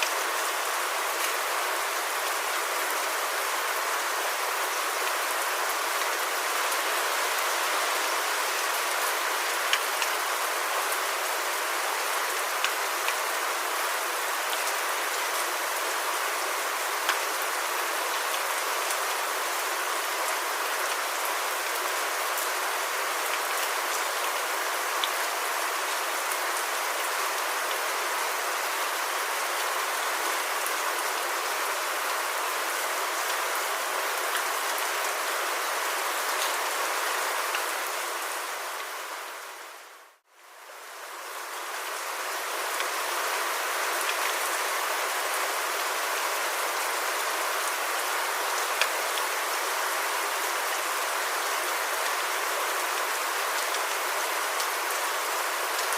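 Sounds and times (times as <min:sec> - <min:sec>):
steady rain hiss: 0:00.0 - 0:55.9
faint raindrop ticks: 0:17.0 - 0:17.2, 0:48.8 - 0:49.3.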